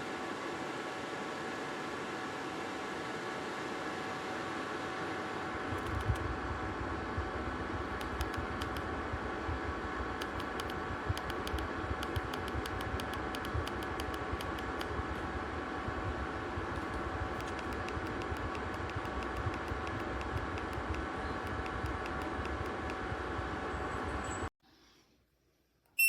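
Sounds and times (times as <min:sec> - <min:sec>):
space heater fan whoosh: 0:00.0 - 0:24.5.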